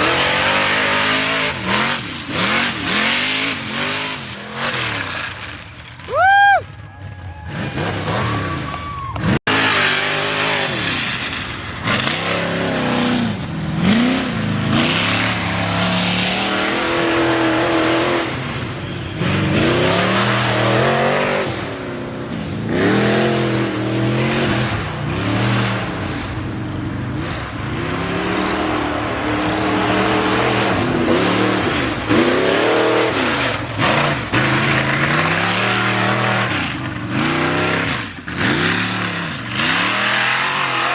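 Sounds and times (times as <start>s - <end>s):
engine revving: 0.0s - 5.7s, 7.5s - 26.4s, 27.1s - 40.9s
tyres on dirt: 0.0s - 40.9s.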